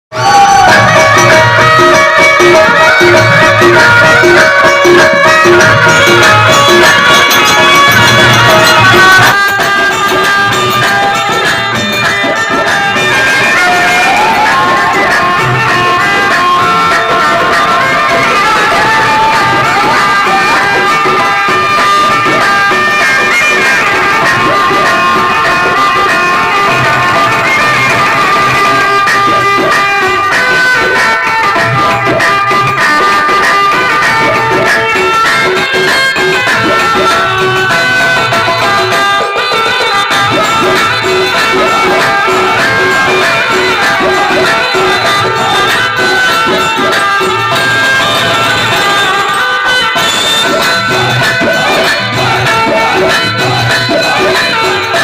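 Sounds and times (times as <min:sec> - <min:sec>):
folk-style song over loudspeakers: 0:00.1 - 0:55.0
loud dance music: 0:00.1 - 0:55.0.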